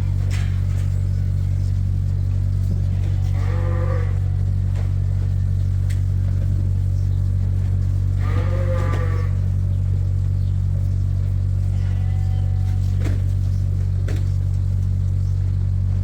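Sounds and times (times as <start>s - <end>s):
steady low hum: 0.0s - 16.0s
sheep bleating: 2.8s - 5.0s, 8.1s - 9.6s, 11.5s - 13.2s.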